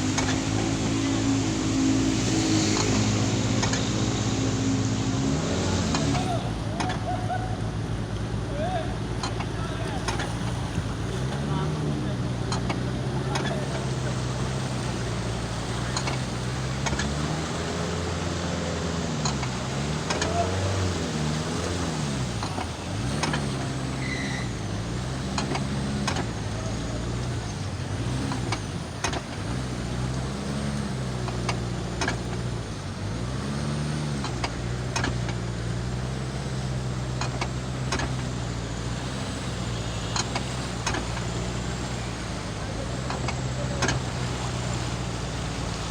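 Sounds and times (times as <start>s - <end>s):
car engine revving: 0.0s - 45.9s.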